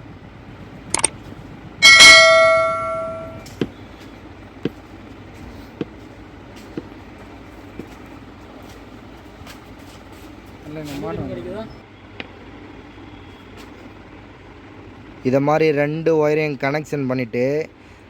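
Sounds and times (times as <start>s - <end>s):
metal ringing clang: 1.8s - 3.4s.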